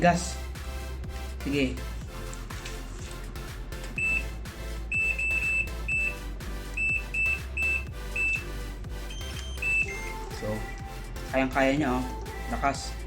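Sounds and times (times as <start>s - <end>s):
background music: 0.0s - 13.0s
short high electronic beeps: 9.1s - 10.1s.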